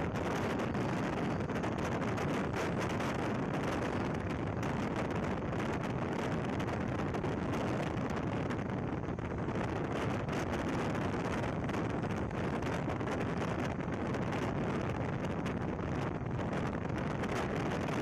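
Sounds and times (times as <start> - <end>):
train rushing noise: 0.0 - 6.3
wind buffeting microphone: 0.0 - 18.0.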